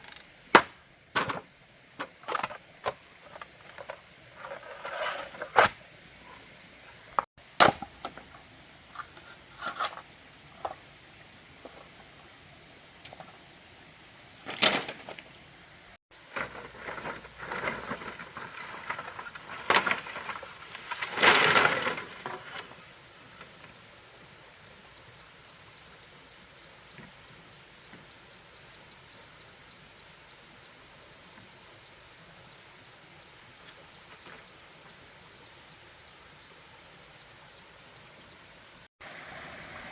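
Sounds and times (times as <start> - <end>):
cricket pulsed trill: 0.0 - 17.6
insects droning: 0.0 - 39.9.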